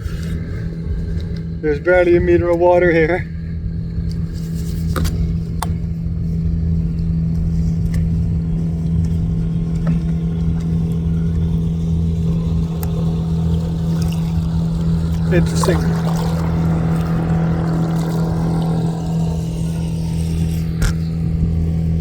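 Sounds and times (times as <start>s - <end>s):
boat motor running: 0.0s - 22.0s.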